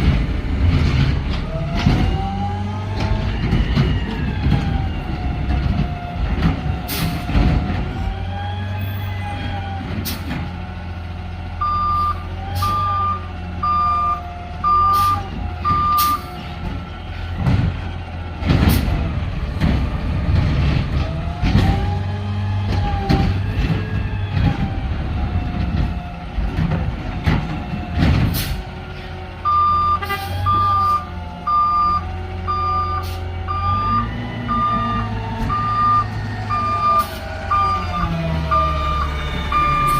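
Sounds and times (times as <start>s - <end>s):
garbage truck engine: 0.0s - 39.9s
backup alarm beeping: 11.6s - 16.3s, 29.4s - 39.9s.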